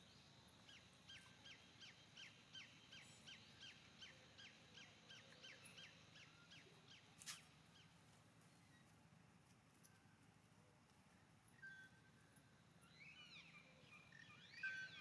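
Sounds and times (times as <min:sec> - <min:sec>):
bird chirping: 0:12.8 - 0:15.0.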